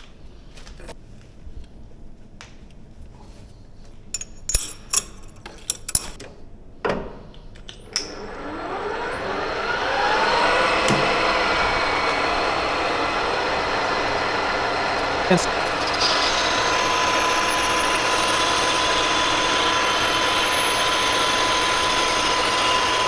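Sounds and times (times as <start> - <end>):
metal clinks and knocks: 4.1 - 6.2
lathe motor whine: 7.9 - 23.0.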